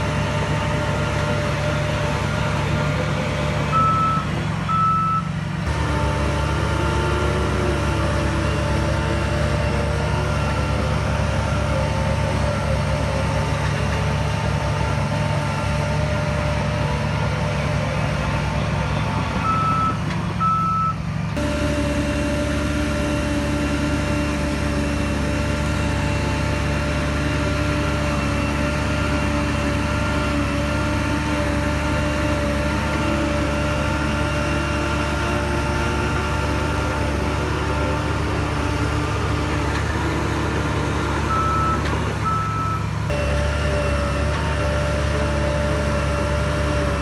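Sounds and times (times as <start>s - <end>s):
diesel machinery running: 0.0s - 47.0s
reversing alarm beeps: 3.7s - 5.3s, 19.4s - 21.0s.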